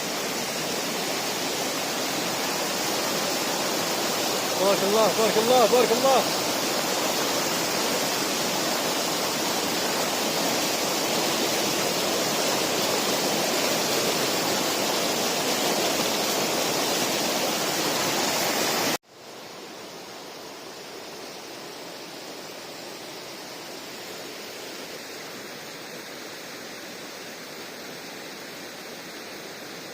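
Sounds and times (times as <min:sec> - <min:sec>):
river water rushing: 0:00.0 - 0:29.9.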